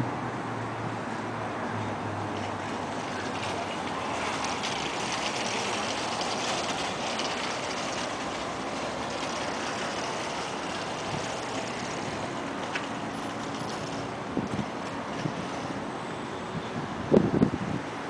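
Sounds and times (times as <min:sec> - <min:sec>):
pressure washer engine running: 0:02.4 - 0:15.8.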